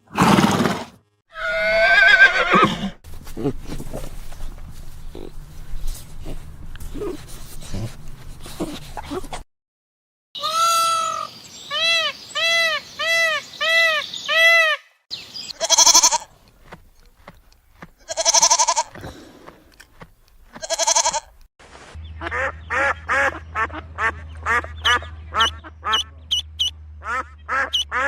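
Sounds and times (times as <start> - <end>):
low hum: 3.1 - 9.4, 21.8 - 28.0
farm animal bleating: 10.4 - 11.2, 15.5 - 16.4, 18.0 - 19.0, 20.5 - 21.4.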